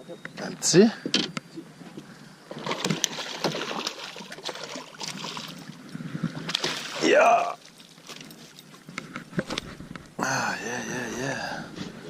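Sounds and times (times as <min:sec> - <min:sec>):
fish splashing in water: 0:02.6 - 0:05.8.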